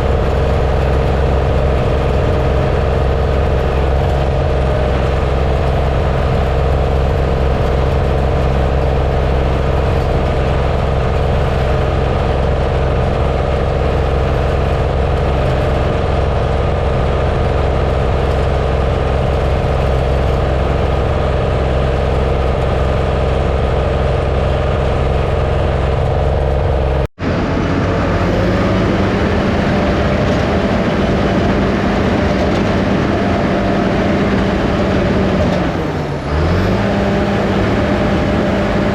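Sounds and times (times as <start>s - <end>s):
diesel engine running under load: 0.0s - 38.9s.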